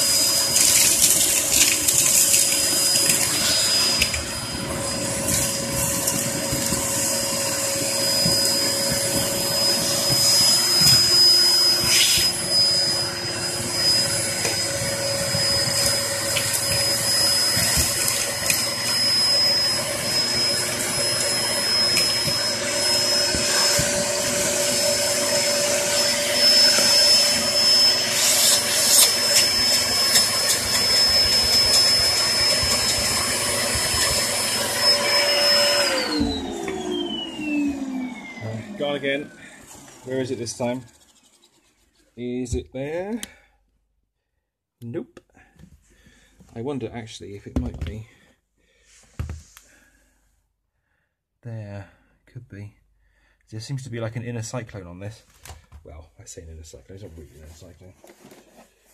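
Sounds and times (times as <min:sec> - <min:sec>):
upright vacuum cleaner running: 0:00.0 - 0:41.0.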